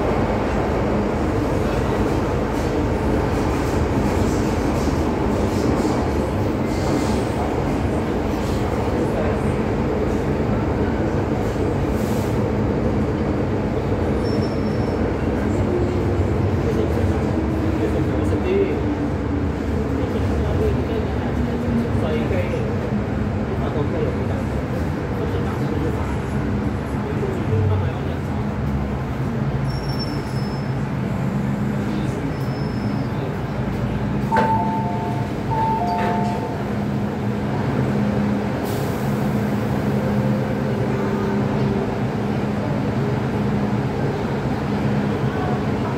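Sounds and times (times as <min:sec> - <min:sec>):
metro train rumbling on rails: 0:00.0 - 0:45.9.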